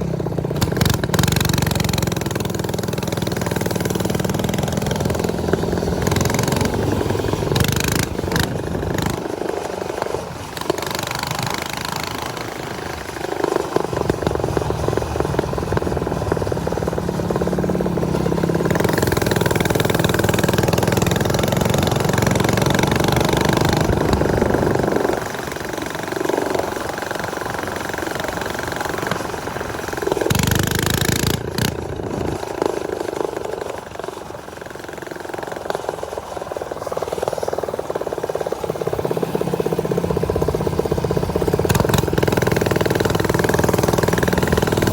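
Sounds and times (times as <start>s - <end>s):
small motorbike engine running: 0.0s - 44.9s.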